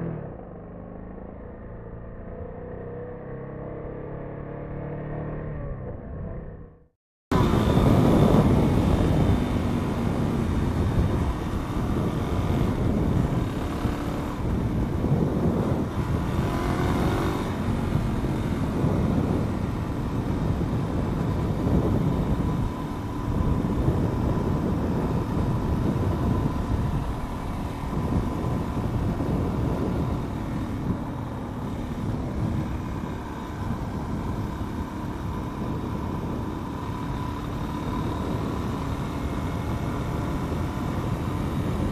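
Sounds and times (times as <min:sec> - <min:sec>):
road and wind noise: 0:00.0 - 0:41.9
motorcycle engine running: 0:07.3 - 0:41.9.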